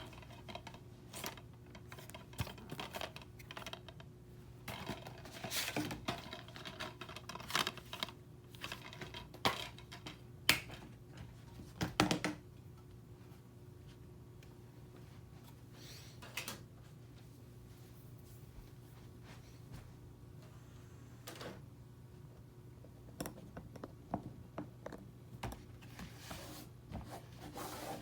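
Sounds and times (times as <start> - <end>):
steady low hum: 12.4 - 28.0.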